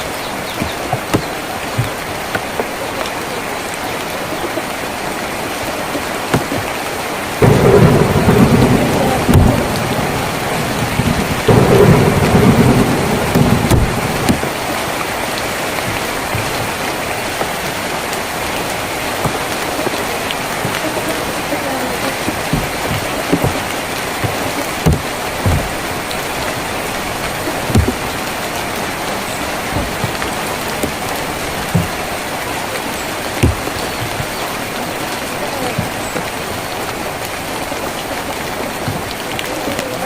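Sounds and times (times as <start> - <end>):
rain on a tin roof: 0.0 - 40.0
loud thunder rumbling: 7.3 - 32.5.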